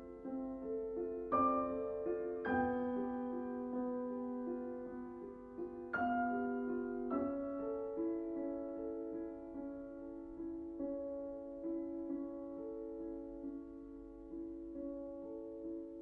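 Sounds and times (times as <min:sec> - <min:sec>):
slow solo piano: 0:00.0 - 0:16.0.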